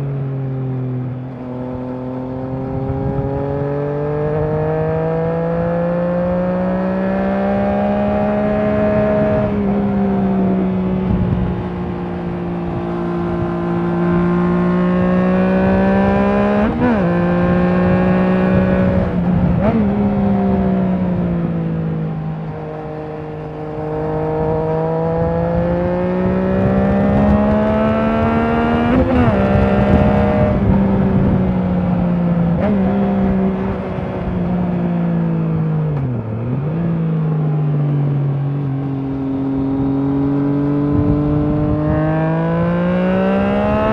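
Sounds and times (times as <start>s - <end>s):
motorcycle engine revving: 0.8s - 43.9s.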